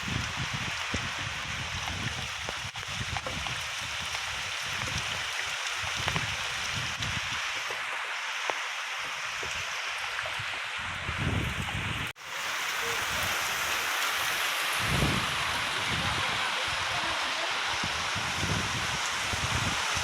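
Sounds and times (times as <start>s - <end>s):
raindrops ticking: 0.0s - 10.6s
rain hissing: 0.0s - 20.0s.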